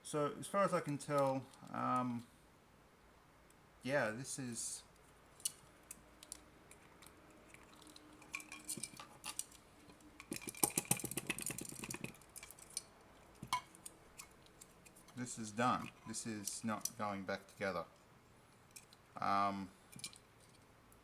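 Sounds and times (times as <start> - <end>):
small plastic and metal parts clicking: 5.4 - 17.0.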